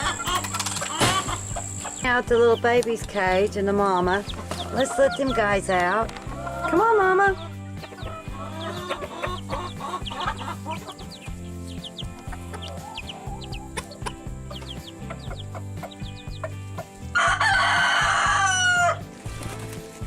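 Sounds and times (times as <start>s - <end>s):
chickens clucking: 0.0s - 18.8s
background music: 0.0s - 20.0s
rooster crowing: 17.1s - 19.0s.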